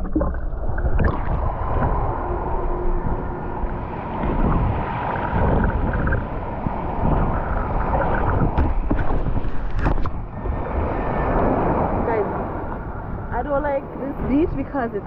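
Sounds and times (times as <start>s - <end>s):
sea water washing on shore: 0.0s - 15.0s
wind buffeting microphone: 0.0s - 15.0s.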